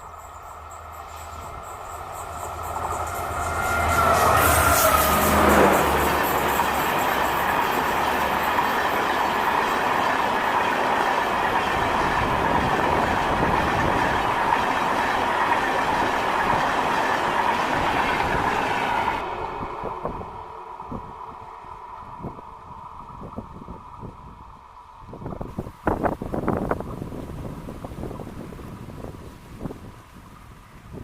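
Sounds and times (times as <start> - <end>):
train wheels rumbling on rails: 0.0 - 31.0
clickety-clack over rail joints: 0.7 - 19.2.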